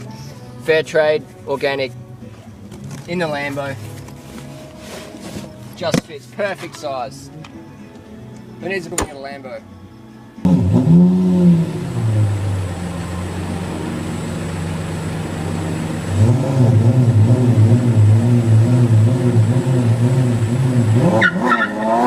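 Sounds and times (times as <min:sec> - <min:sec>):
vehicle engine running: 0:10.4 - 0:22.0.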